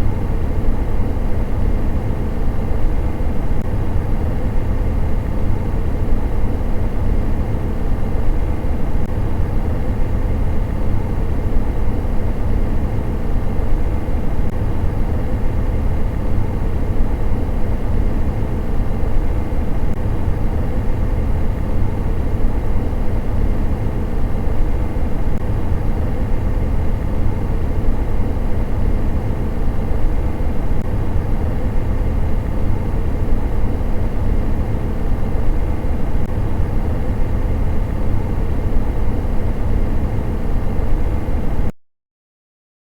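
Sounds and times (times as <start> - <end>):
faint steady hum: 0.0 - 41.7.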